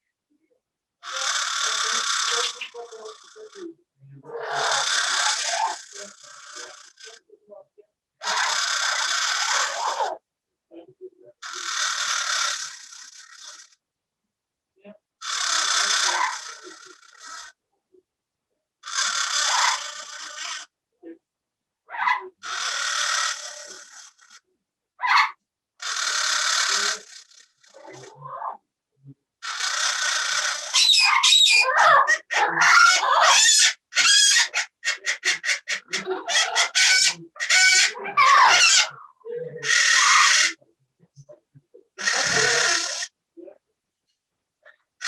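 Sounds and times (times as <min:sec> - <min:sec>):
parrot screeching: 0:01.0 - 0:02.8, 0:04.3 - 0:05.9, 0:08.2 - 0:10.2, 0:15.2 - 0:17.5, 0:18.8 - 0:20.7, 0:21.9 - 0:23.6, 0:25.0 - 0:28.6, 0:29.4 - 0:39.0, 0:39.6 - 0:40.6, 0:42.0 - 0:43.1.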